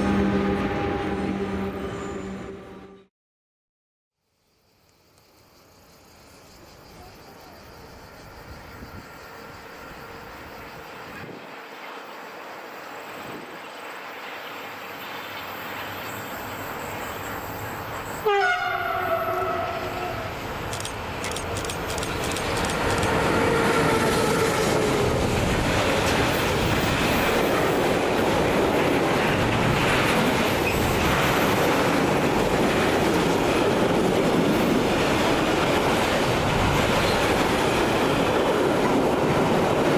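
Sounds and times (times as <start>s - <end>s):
train horn: 0.0s - 3.1s, 18.1s - 20.5s, 23.0s - 25.4s
train wheels rumbling on rails: 6.4s - 39.9s.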